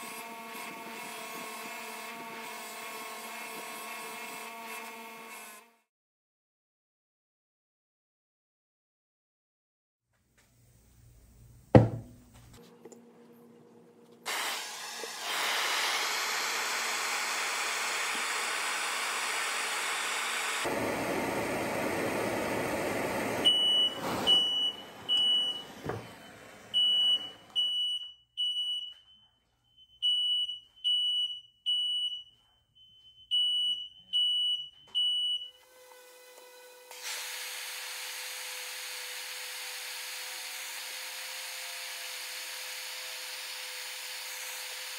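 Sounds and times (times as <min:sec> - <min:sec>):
torch flame hissing: 0:14.2 - 0:26.0
smoke alarm beeping: 0:23.4 - 0:35.6.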